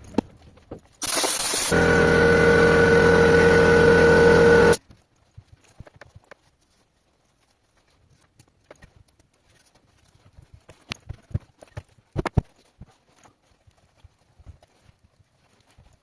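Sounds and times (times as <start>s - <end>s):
hiss: 1.0s - 1.8s
machine with held tone: 1.0s - 4.8s.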